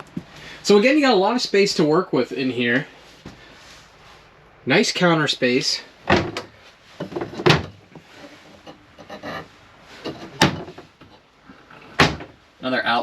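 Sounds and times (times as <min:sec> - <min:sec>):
doors opening and shutting: 0:06.0 - 0:08.0, 0:10.0 - 0:12.4.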